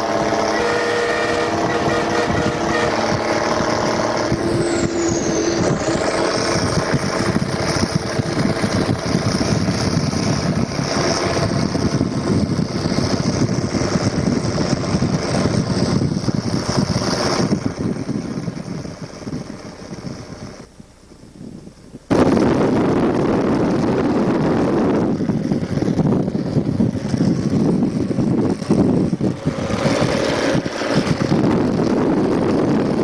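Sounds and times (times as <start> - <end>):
held tone: 0.0 - 8.2
vehicle rumble: 0.0 - 33.0.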